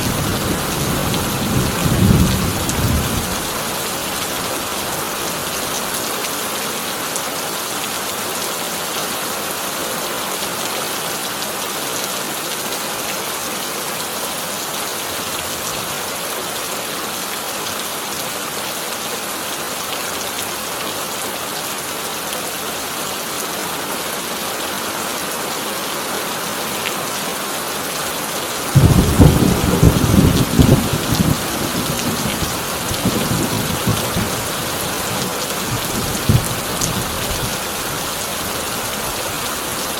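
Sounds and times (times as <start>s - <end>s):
heavy rain on a tin roof: 0.0s - 39.9s
thunderclap rumbling: 28.8s - 34.6s.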